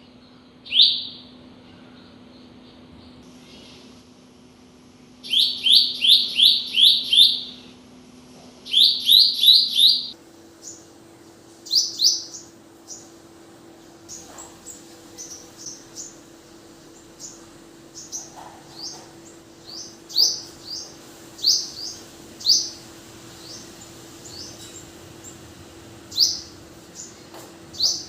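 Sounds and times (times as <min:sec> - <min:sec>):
faint steady hum: 0:00.0 - 0:28.0
bird rising chirps: 0:05.2 - 0:07.8, 0:08.6 - 0:11.0, 0:11.6 - 0:13.3, 0:13.9 - 0:28.0.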